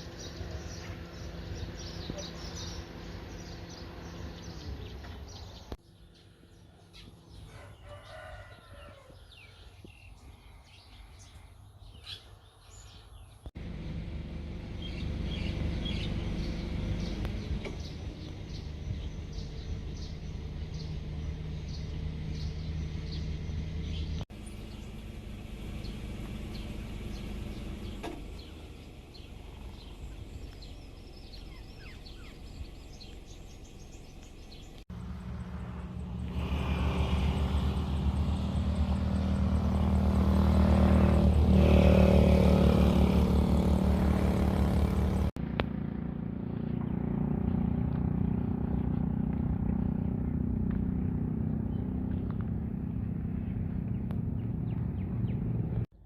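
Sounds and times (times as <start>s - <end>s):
small birds chirping: 0.0s - 13.6s, 14.7s - 41.5s, 46.6s - 55.9s
rooster crowing: 7.4s - 9.6s.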